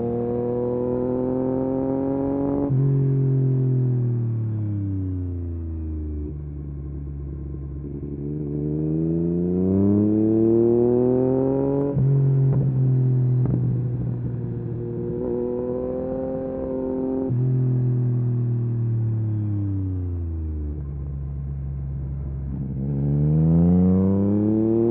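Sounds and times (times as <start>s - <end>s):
motorcycle engine accelerating: 0.0s - 24.9s.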